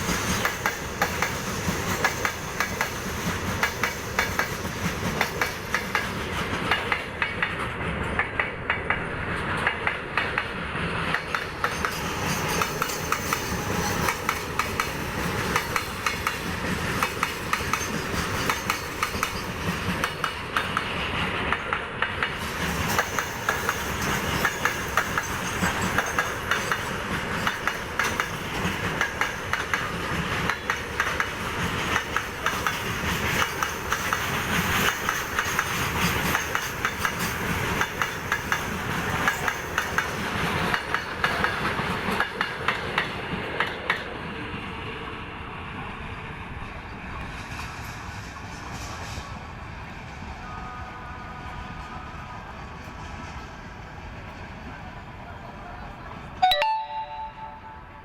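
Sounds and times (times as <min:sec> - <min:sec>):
train wheels clacking over rail joints: 0:00.0 - 0:44.1.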